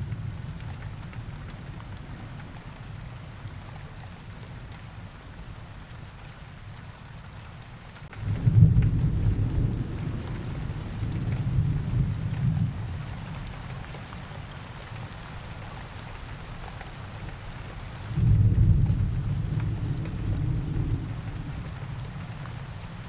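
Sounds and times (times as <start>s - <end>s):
steady rain hiss: 0.0s - 23.0s
thunder rumbling: 8.2s - 13.2s, 18.2s - 22.2s.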